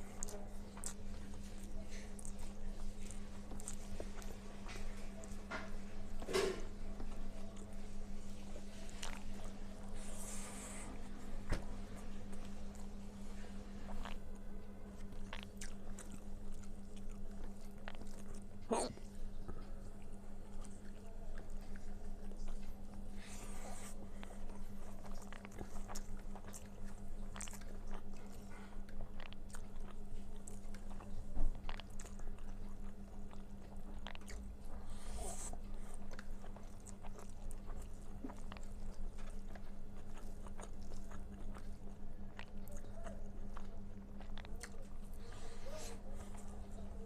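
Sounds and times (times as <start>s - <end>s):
person chewing food: 0.0s - 6.3s, 7.0s - 11.0s, 12.0s - 47.0s
steady low hum: 0.0s - 47.0s.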